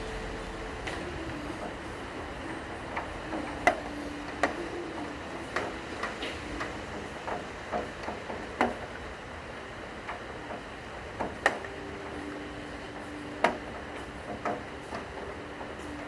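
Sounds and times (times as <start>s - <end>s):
low cello notes: 0.0s - 2.8s
steady rain hiss: 0.0s - 16.0s.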